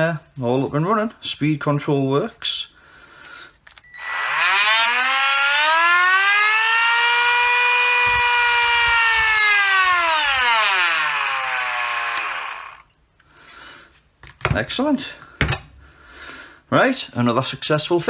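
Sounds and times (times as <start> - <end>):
rotary tool motor whine: 3.8 - 12.9.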